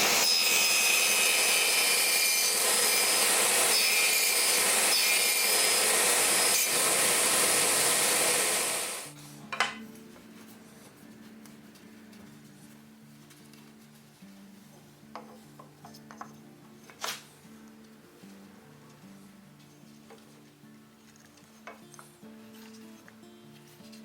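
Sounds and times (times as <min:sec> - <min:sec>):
soft background music: 0:09.1 - 0:24.0.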